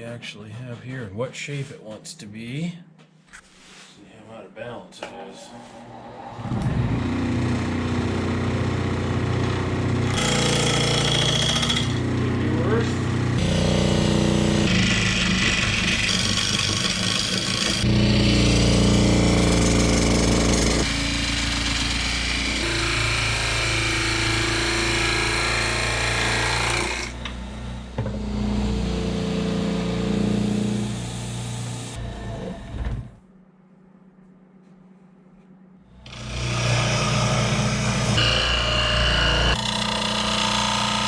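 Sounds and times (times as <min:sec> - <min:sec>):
lathe motor hum: 0:10.0 - 0:12.6, 0:13.2 - 0:33.1, 0:36.0 - 0:41.0
gouge cutting wood: 0:10.1 - 0:12.0, 0:13.4 - 0:27.3, 0:36.1 - 0:41.0.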